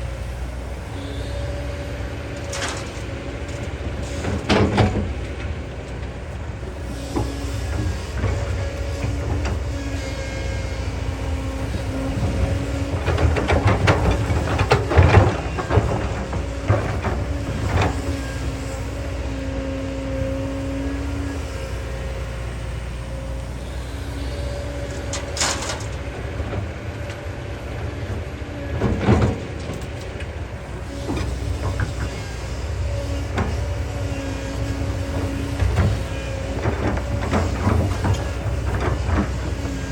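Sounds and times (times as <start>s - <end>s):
excavator diesel engine running: 0.0s - 39.9s
metallic clanks and scrapes: 2.4s - 5.1s, 24.9s - 26.1s.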